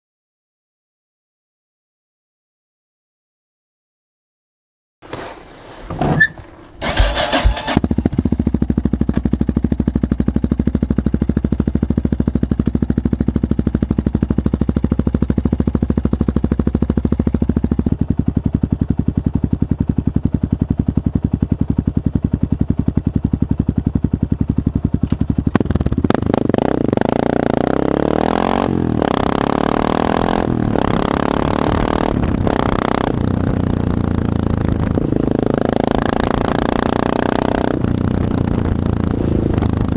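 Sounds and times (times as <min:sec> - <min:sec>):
motorcycle engine revving: 0:05.1 - 0:39.9
motorcycle engine idling: 0:06.5 - 0:26.4.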